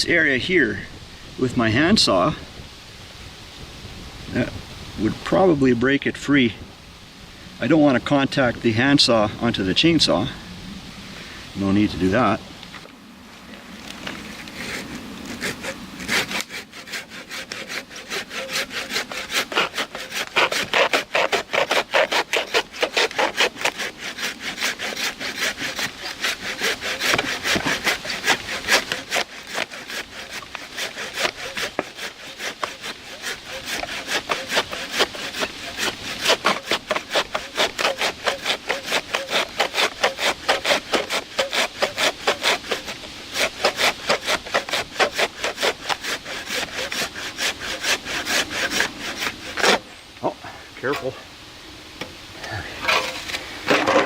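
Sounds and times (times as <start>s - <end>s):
handsaw cutting wood: 14.1s - 49.8s.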